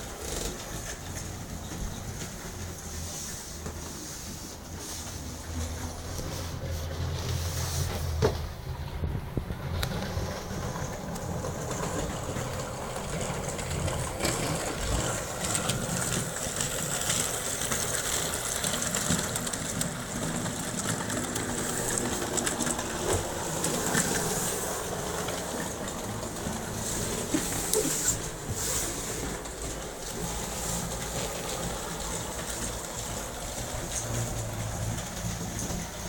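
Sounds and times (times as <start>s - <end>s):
toy locomotive motor whirring: 9.9s - 35.8s.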